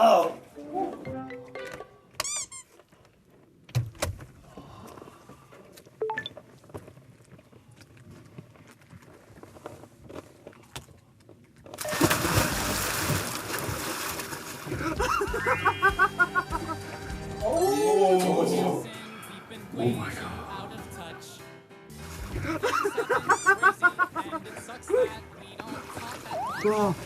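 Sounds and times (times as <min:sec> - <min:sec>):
water splashing and churning: 0:11.8 - 0:17.0, 0:21.9 - 0:27.0.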